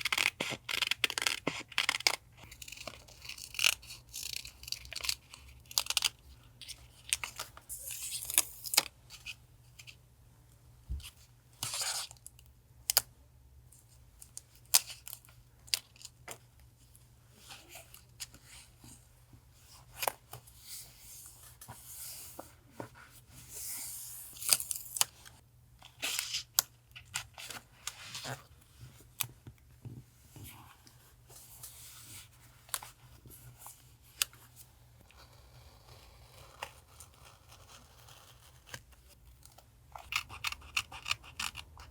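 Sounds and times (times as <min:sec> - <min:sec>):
scissors snipping paper: 0:40.0 - 0:41.9.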